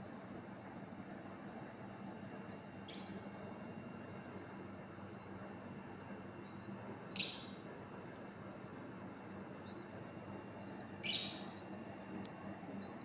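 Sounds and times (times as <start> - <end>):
steady low hum: 0.0 - 13.0
small bird chirping: 1.6 - 3.4, 4.4 - 5.4, 6.4 - 7.6, 9.6 - 9.9, 10.6 - 13.0.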